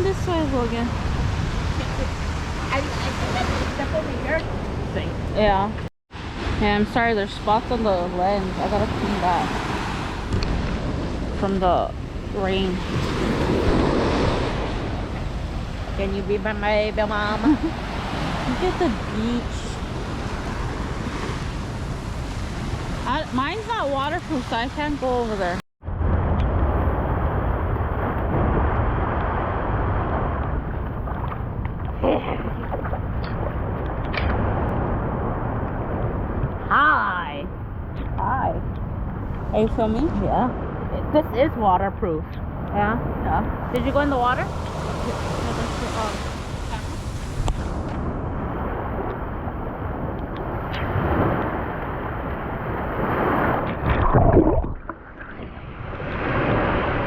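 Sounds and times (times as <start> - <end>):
beach surf: 0.0 - 57.0
wind buffeting microphone: 0.0 - 57.0
water sloshing: 37.9 - 49.2.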